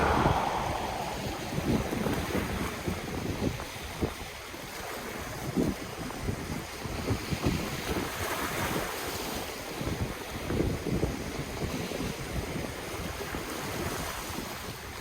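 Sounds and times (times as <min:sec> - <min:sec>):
ocean waves washing ashore: 0:00.0 - 0:02.6
wind rumbling on microphone: 0:00.0 - 0:03.5.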